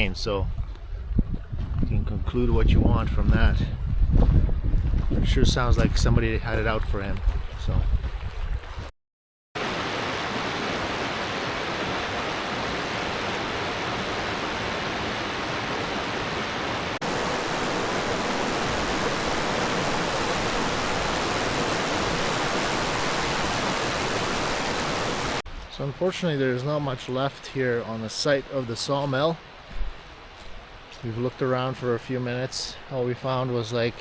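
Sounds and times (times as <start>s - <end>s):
rushing water: 9.6s - 34.0s.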